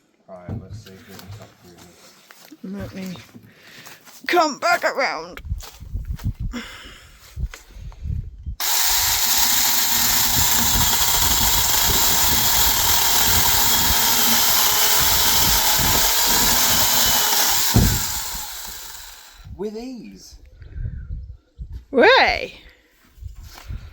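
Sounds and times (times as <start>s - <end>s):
battery chainsaw cutting branch: 8.6s - 19.5s.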